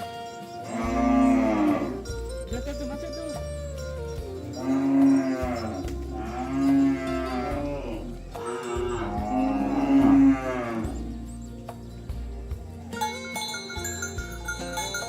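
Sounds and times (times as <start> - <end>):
cattle mooing: 0.6 - 2.1, 4.6 - 11.2.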